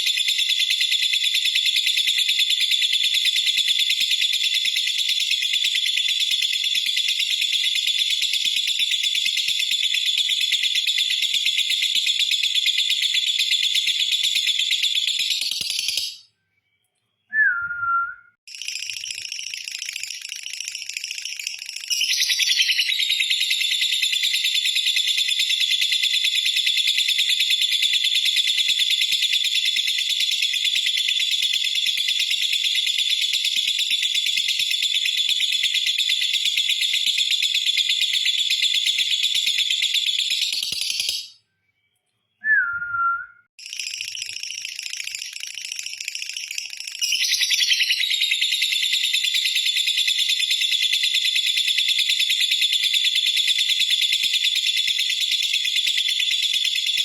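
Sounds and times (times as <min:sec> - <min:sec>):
short falling whistle: 0:17.3 - 0:18.4, 0:42.4 - 0:43.5.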